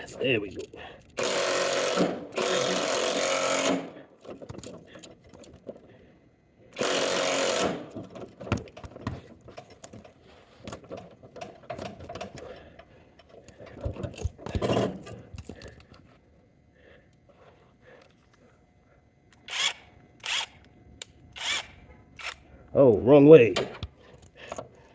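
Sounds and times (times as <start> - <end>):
car jack clicking and clatter: 6.8 - 15.2.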